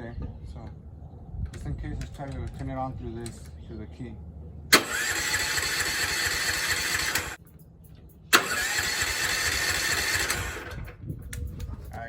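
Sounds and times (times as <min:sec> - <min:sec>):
electric starter cranking engine: 0:04.7 - 0:07.4, 0:08.3 - 0:11.0.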